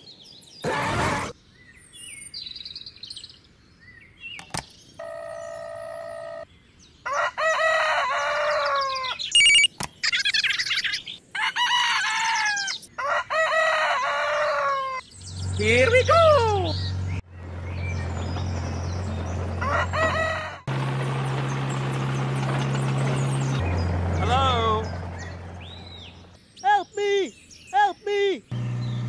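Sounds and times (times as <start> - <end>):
rooster crowing: 7.0 - 9.2, 11.3 - 15.0, 19.6 - 20.7.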